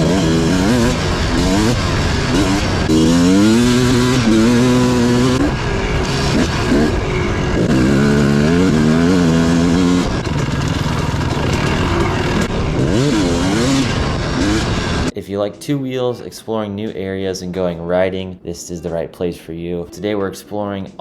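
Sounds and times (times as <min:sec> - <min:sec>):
dirt bike engine revving: 0:00.0 - 0:15.1.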